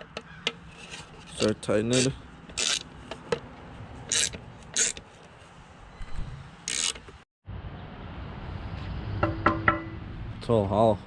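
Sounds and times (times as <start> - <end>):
screwdriver scraping rasps: 0.0 - 3.4, 4.1 - 5.2, 6.7 - 7.2.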